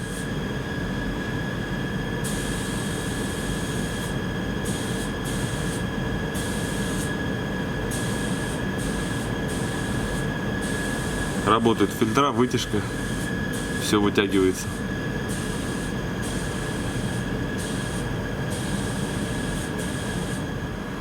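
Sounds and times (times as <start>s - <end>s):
extraction fans rushing: 0.0s - 21.0s
steady whine: 0.0s - 21.0s.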